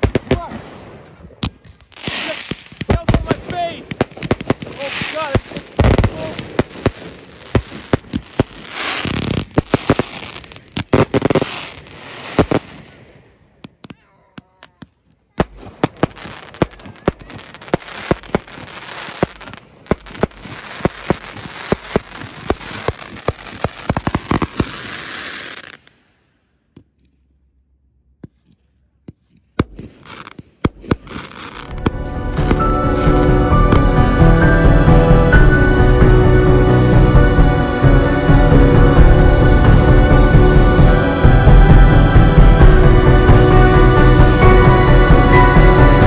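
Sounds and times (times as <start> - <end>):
fireworks cracks and bangs: 0.0 - 26.1, 28.2 - 35.2
firecracker pops: 1.4 - 11.6, 28.2 - 32.6.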